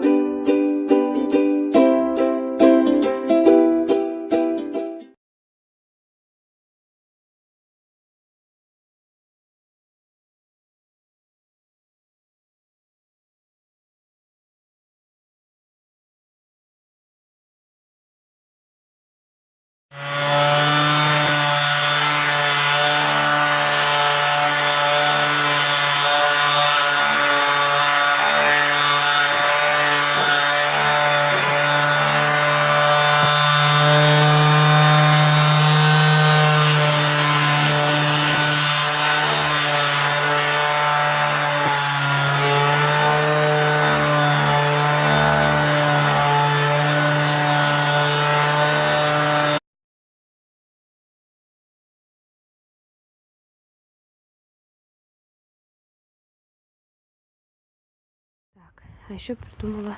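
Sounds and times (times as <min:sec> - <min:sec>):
power tool motor humming: 0:20.0 - 0:49.6.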